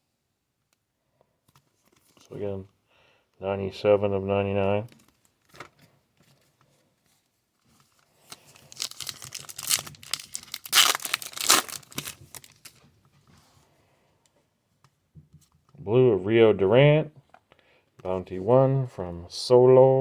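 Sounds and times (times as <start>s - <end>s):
wrapper tearing and crinkling: 8.2s - 12.8s.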